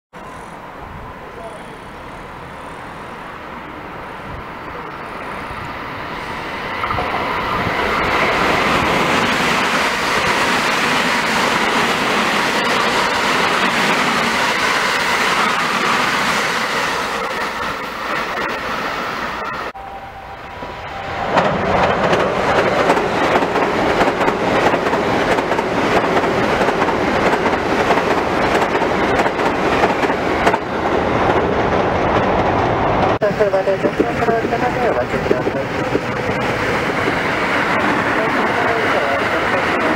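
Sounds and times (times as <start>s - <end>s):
electric train passing at speed: 0.2s - 39.9s
train wheels clattering on bridge: 21.3s - 33.2s.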